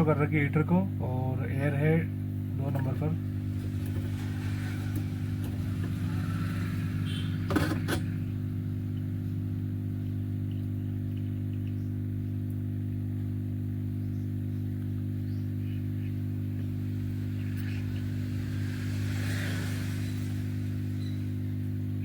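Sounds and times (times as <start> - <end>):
hot-air blower humming: 0.8 - 9.6, 14.8 - 22.0.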